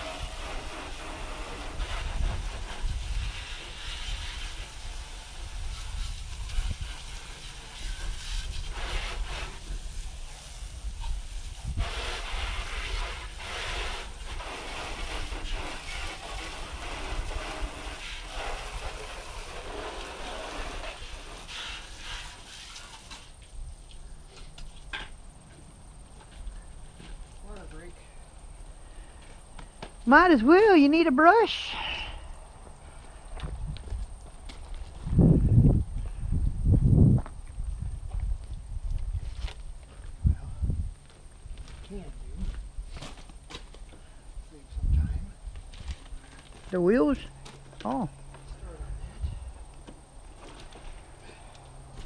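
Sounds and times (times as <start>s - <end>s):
wind rumbling on microphone: 0.0s - 22.4s, 31.8s - 43.0s, 44.2s - 46.8s, 48.5s - 52.0s
pressure washer spray hissing: 0.0s - 23.3s.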